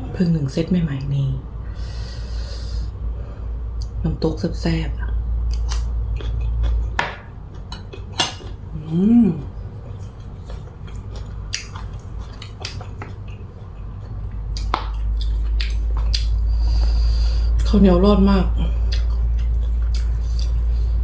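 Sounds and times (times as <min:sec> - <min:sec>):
steady low hum: 0:00.0 - 0:21.0
person humming: 0:08.8 - 0:09.6.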